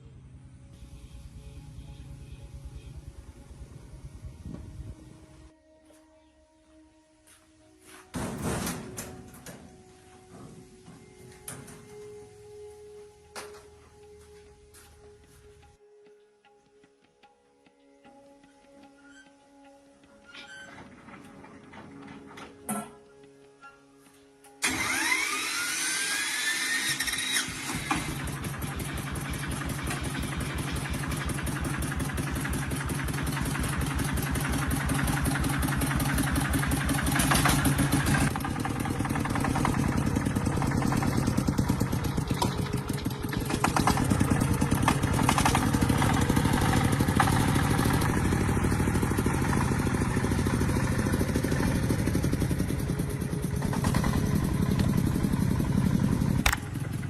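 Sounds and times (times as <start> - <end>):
truck engine running: 24.6 - 25.7, 26.5 - 57.0
starter motor whine: 24.6 - 57.0.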